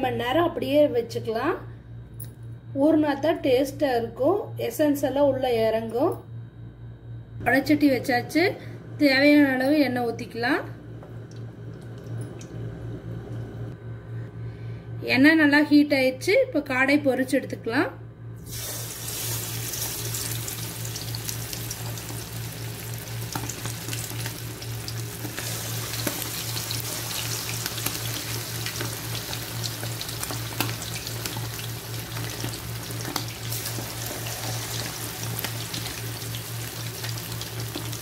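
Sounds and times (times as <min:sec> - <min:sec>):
oil sizzling and crackling: 0:18.4 - 0:38.0.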